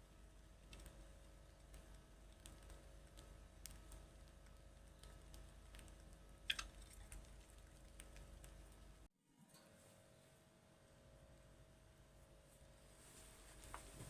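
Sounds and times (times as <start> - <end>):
faint irregular clicks: 0.0 - 9.1
low steady hum: 0.0 - 14.0.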